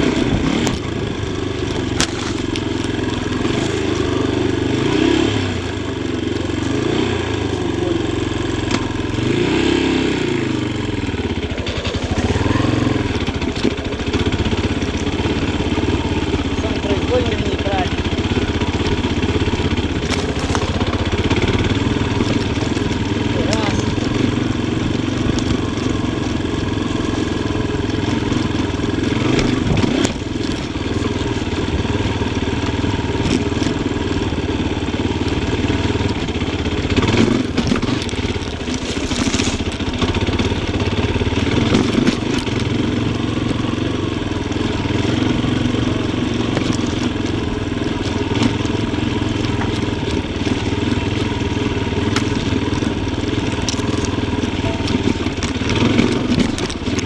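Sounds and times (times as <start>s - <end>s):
motorcycle engine revving: 0.0s - 57.0s
sharp knocks and clatter: 46.4s - 57.0s.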